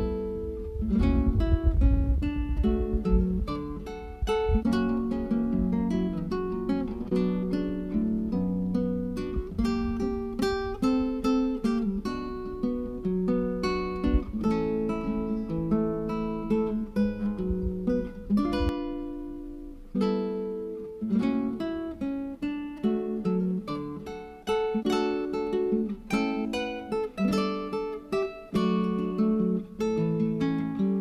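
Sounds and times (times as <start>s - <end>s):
acoustic guitar chords: 0.0s - 31.0s.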